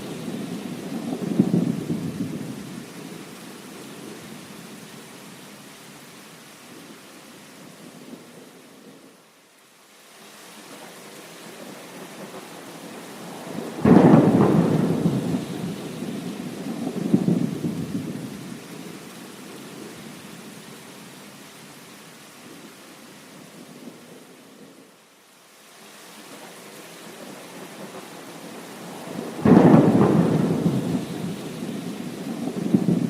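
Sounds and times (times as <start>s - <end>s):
thunder rumbling and cracking: 0.0s - 2.8s, 13.6s - 18.6s, 29.0s - 33.0s
steady rain: 0.0s - 33.0s.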